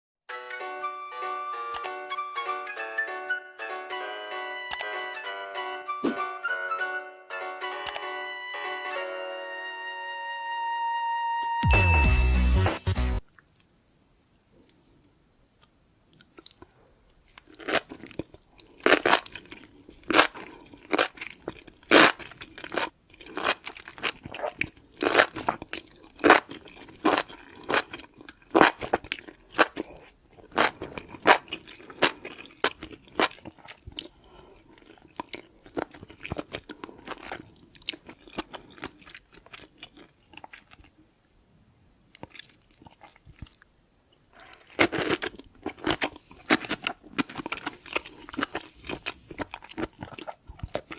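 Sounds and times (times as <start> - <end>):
crunchy chewing of food: 13.3 - 41.1, 42.1 - 50.9.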